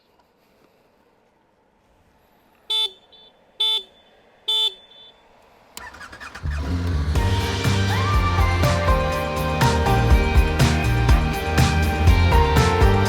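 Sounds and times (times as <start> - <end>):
motorcycle horn beeps: 2.7 - 5.2
background music: 6.1 - 13.0.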